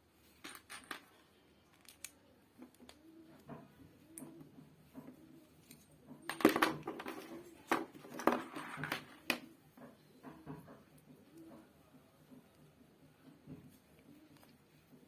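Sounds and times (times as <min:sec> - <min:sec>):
plastic parts knocking and rattling: 0:06.0 - 0:10.9.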